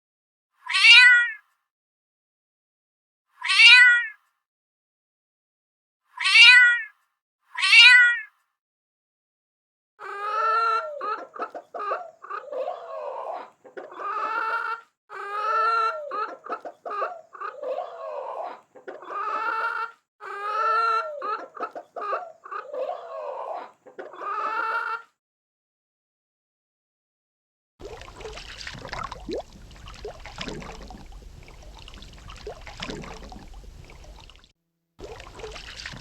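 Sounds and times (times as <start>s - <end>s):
chicken clucking and calling: 10.0s - 25.1s, 27.8s - 34.4s.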